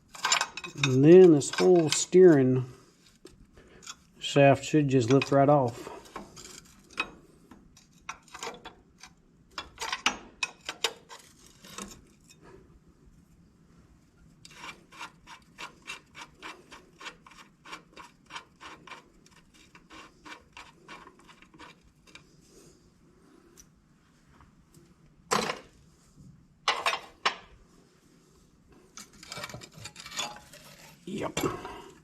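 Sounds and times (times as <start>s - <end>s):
metal scraping and rubbing: 0.1s - 2.7s.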